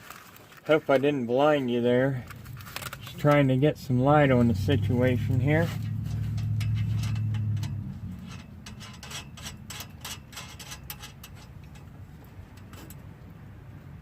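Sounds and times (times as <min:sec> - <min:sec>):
low hum: 0:02.1 - 0:12.7
hand tools clicking on metal: 0:05.3 - 0:13.0.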